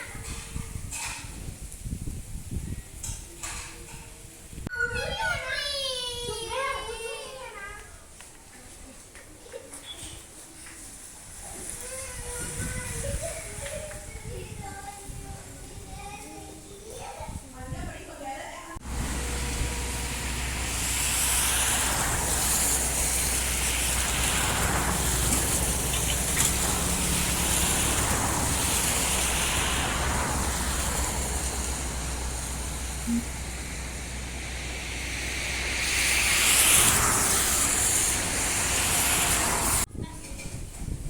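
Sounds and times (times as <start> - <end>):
heavy rain hiss: 18.8 - 39.9
low rumble: 18.8 - 39.9.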